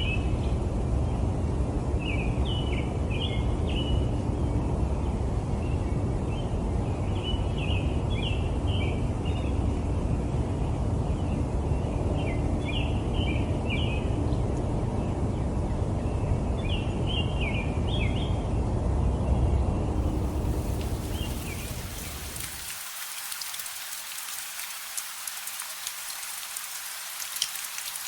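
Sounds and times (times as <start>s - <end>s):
city ambience rumble: 19.9s - 28.0s
bird chirping: 20.0s - 28.0s.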